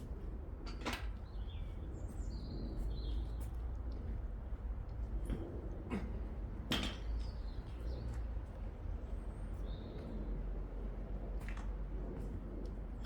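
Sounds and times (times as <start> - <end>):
steady low rumble: 7.4 - 13.0.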